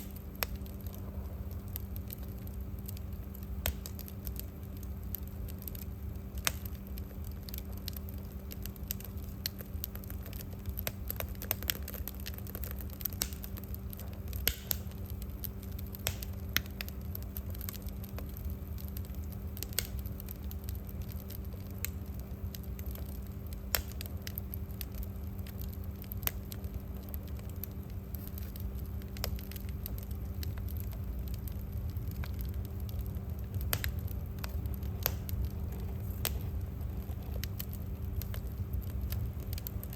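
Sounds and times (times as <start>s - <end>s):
low hum: 0.0s - 11.2s, 24.1s - 39.9s
fire pops and snaps: 0.0s - 39.9s
wood fire crackling: 0.0s - 39.9s.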